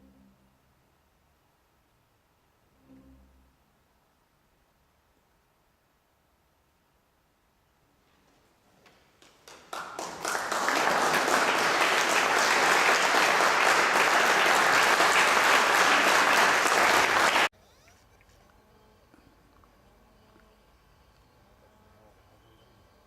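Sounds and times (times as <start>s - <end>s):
audience applause: 9.2s - 17.5s.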